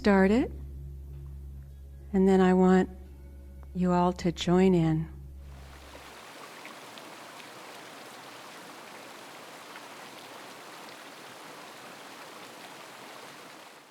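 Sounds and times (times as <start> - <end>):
steady hiss: 5.5 - 13.9.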